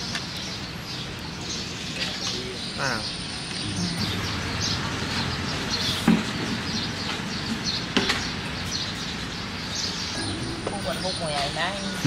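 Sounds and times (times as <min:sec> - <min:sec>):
small birds chirping: 0:00.0 - 0:12.0
steady background noise: 0:00.0 - 0:12.0.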